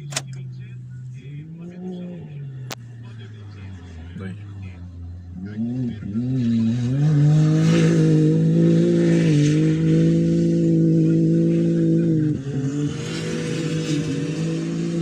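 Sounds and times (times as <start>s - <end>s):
engine accelerating at high revs: 1.0s - 15.0s.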